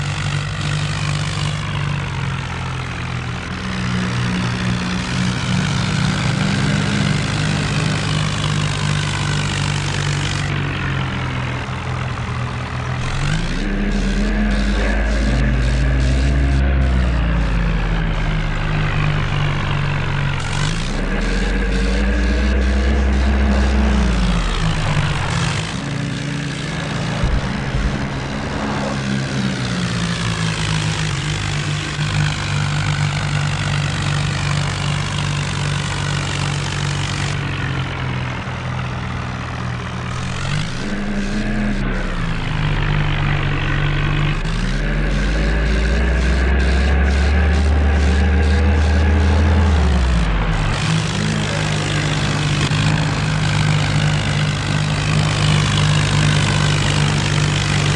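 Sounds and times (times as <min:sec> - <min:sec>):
tractor diesel engines running: 0:00.0 - 0:57.9.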